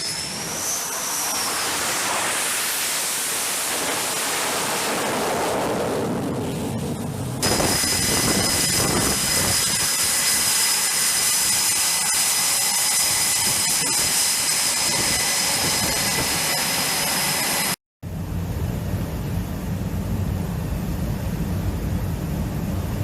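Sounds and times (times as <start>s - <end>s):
jet engine whining: 0.0s - 11.0s, 14.4s - 23.0s.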